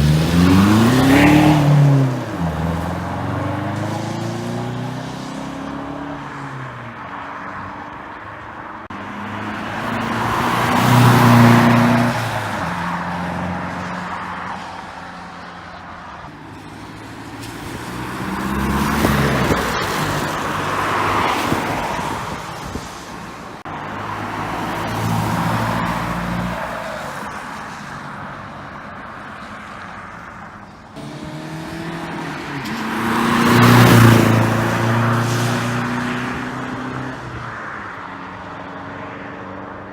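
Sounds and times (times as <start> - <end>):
diesel engine accelerating: 0.0 - 6.0, 31.0 - 37.2.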